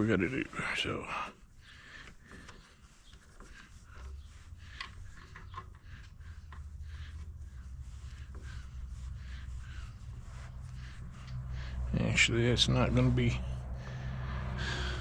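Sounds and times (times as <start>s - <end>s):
handling noises with clicks: 4.8s - 6.6s
low rumble: 7.4s - 15.0s.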